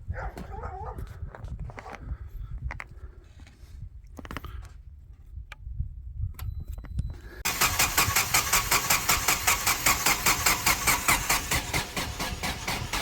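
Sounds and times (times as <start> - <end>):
generator engine cranking: 7.4 - 13.0.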